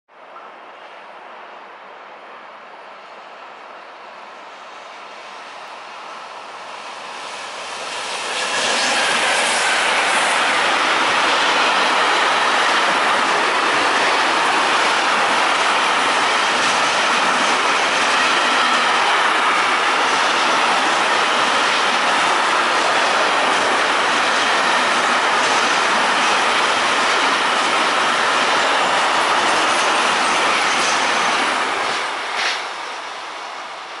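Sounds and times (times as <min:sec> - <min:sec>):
freight train wheels rolling: 0:05.5 - 0:34.0.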